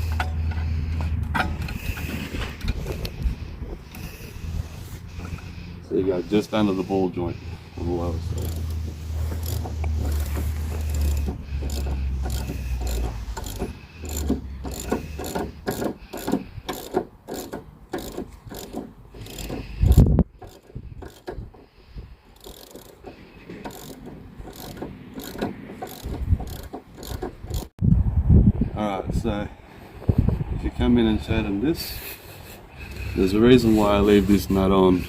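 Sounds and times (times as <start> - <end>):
wind rumble on microphone: 0.0 - 5.5, 19.6 - 22.2, 26.0 - 31.8
ratchet wrench clicking: 8.3 - 21.6, 22.4 - 27.7.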